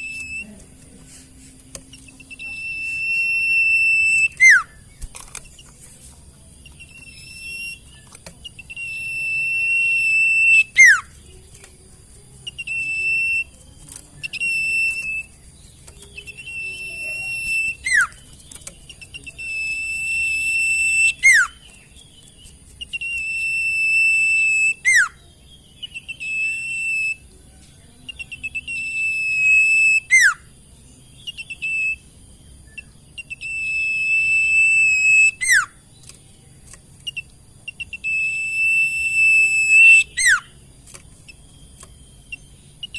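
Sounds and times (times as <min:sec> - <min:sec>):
bird whistling: 0:00.0 - 0:00.6, 0:01.8 - 0:05.6, 0:06.6 - 0:11.3, 0:12.4 - 0:13.6, 0:14.2 - 0:27.3, 0:28.1 - 0:35.8, 0:37.0 - 0:40.6, 0:41.3 - 0:42.9
bird whistle sweeping down: 0:02.2 - 0:04.7, 0:08.7 - 0:11.0, 0:16.3 - 0:18.1, 0:19.4 - 0:21.6, 0:22.9 - 0:25.1, 0:28.5 - 0:30.4, 0:33.2 - 0:35.7, 0:37.8 - 0:40.5.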